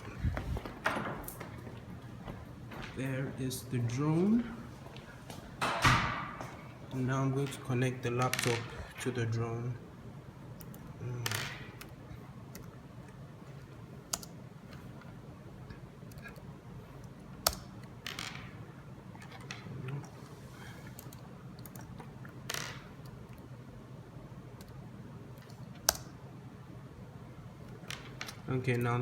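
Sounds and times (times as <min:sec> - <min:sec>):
low steady hum: 0:00.0 - 0:29.0
laptop keys clicking: 0:14.1 - 0:14.8.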